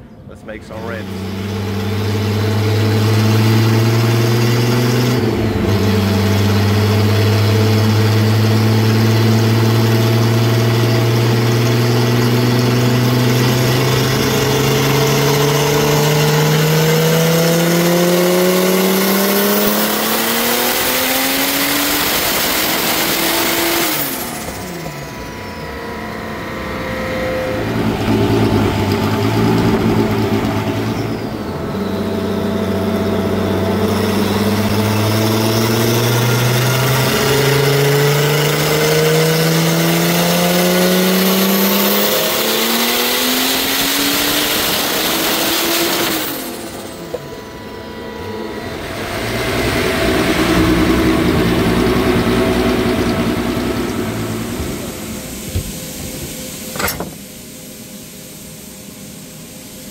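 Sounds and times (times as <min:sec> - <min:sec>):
engine revving at full throttle: 0:00.5 - 0:57.0.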